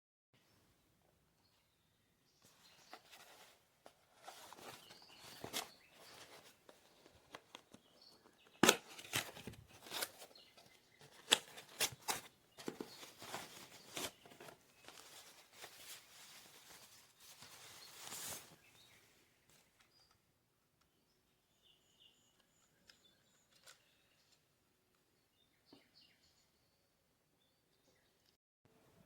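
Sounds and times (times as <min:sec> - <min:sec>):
handling rustling: 0:02.4 - 0:20.0.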